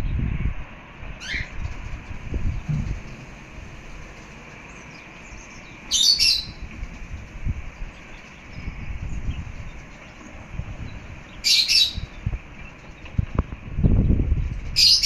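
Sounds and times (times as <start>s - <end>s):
low rumbling noise: 0.0s - 15.0s
bird calling: 1.2s - 1.9s, 2.6s - 13.2s
high chirping: 4.1s - 13.2s.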